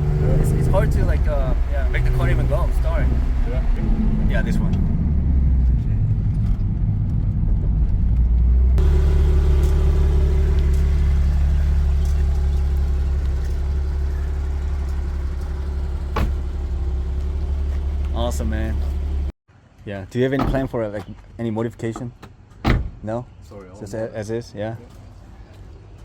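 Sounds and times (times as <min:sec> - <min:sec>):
car engine and road noise: 0:00.0 - 0:19.4.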